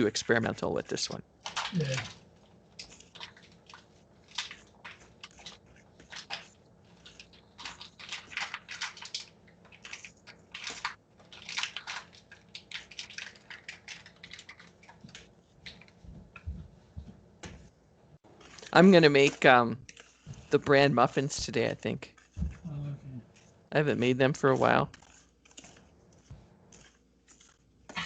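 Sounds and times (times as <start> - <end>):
utensils scraping and clicking: 18.2 - 22.4, 23.2 - 28.0.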